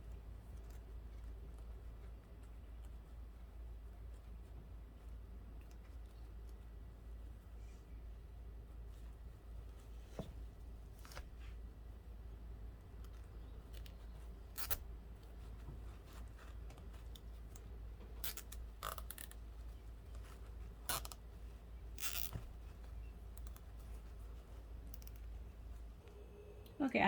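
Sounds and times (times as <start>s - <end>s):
low steady hum: 0.0s - 27.0s
zip ties scratching and clicking: 13.0s - 14.8s, 18.2s - 19.4s, 20.8s - 21.2s, 22.0s - 22.4s, 24.8s - 25.3s.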